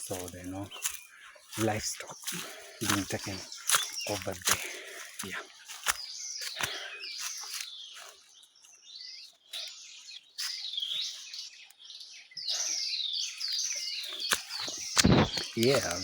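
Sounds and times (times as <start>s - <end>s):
birds singing: 0.0s - 16.0s
sharp click: 15.0s - 15.9s.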